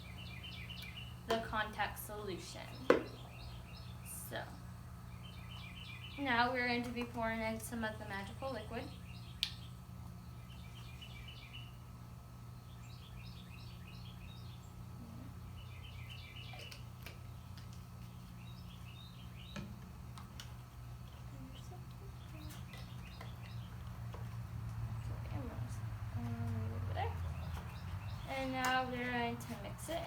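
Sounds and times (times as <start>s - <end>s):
steady low hum: 0.0s - 30.0s
small bird chirping: 5.1s - 6.2s.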